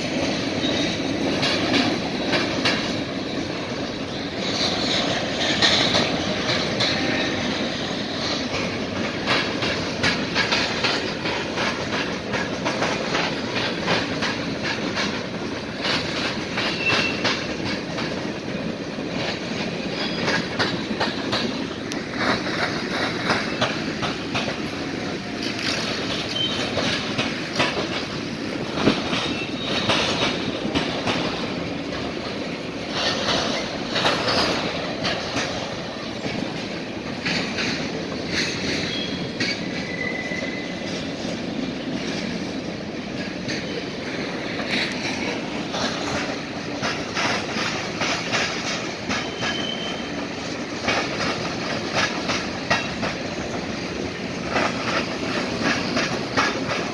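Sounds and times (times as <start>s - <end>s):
train wheels clattering over crossing: 0.0s - 56.9s
high wheel squeals: 29.2s - 30.1s, 38.8s - 41.0s, 49.2s - 50.2s.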